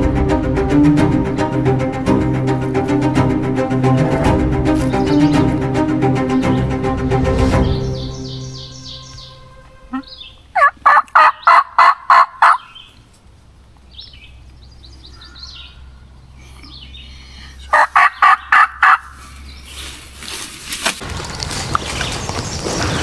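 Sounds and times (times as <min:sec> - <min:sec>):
wild turkey yelping: 0:09.9 - 0:12.9, 0:17.7 - 0:19.1.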